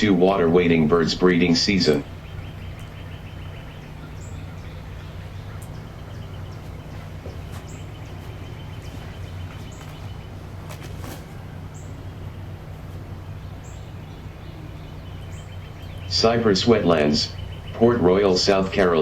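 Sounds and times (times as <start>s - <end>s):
bird chirps: 0.0s - 19.0s
low rumble: 0.0s - 19.0s
rapid ticking bird calls: 0.0s - 19.0s
sharp bird clicks: 1.4s - 16.3s.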